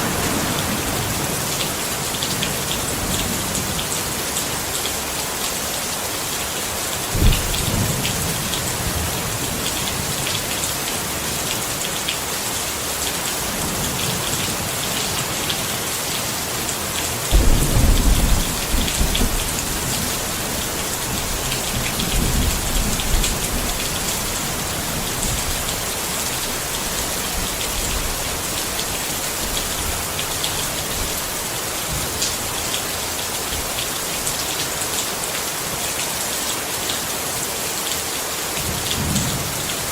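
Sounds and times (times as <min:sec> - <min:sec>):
rain pattering on a tent: 0:00.0 - 0:39.9
thunder rumbling: 0:07.2 - 0:10.1, 0:17.3 - 0:25.9.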